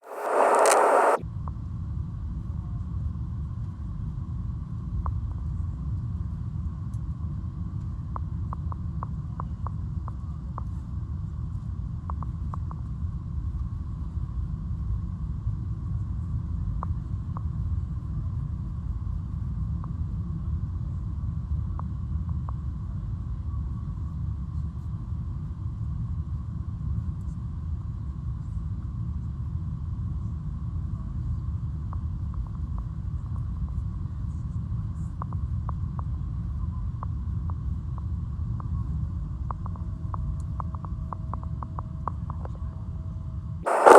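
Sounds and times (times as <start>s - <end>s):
airliner cabin rumble: 0.0s - 1.2s
faint steady hum: 0.0s - 1.2s, 43.7s - 43.9s.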